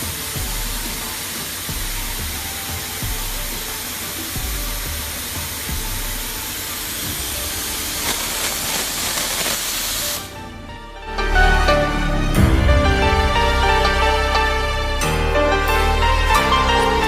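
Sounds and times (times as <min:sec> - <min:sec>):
loud hissing: 0:00.0 - 0:10.6
background music: 0:00.0 - 0:17.0.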